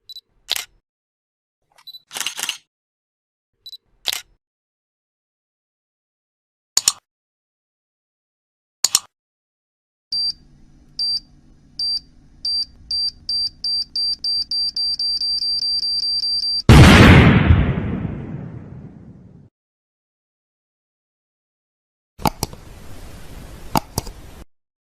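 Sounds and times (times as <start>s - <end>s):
double clicks: 22.2s - 22.6s.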